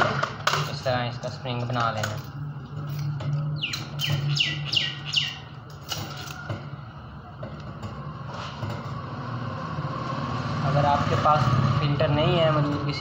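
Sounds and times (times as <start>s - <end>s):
bird chirping: 3.4s - 5.6s.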